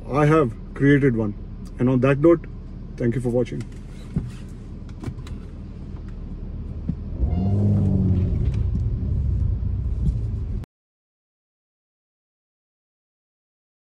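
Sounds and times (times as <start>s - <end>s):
motor vehicle rumbling: 0.0s - 10.7s.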